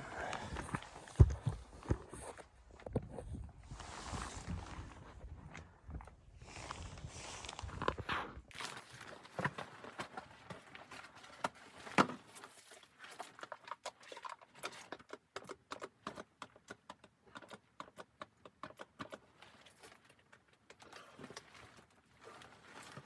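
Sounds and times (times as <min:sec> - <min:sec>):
small clicks and knocks: 0:09.4 - 0:23.0.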